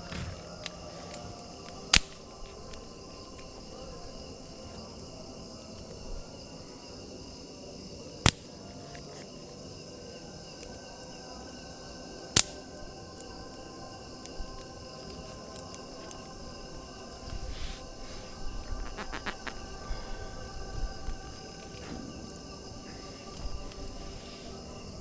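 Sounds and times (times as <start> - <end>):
campfire crackling: 0.0 - 6.4
night insects trilling: 0.0 - 25.0.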